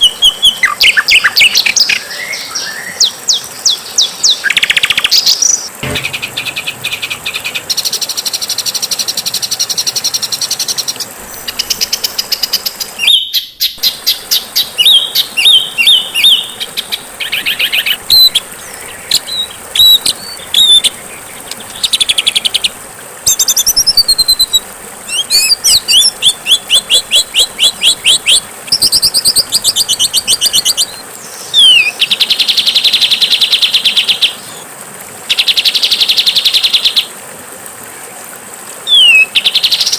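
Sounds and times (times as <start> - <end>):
songbirds trilling and chirping: 0.0 - 32.7.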